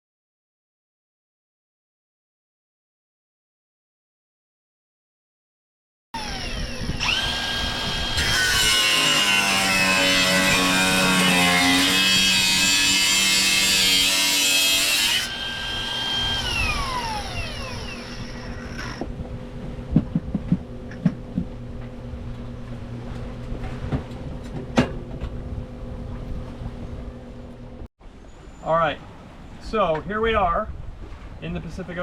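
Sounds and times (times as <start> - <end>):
high machine whine: 6.2 - 8.2
steady low hum: 15.6 - 27.9
sharp knocks and clicks: 19.9 - 22.4.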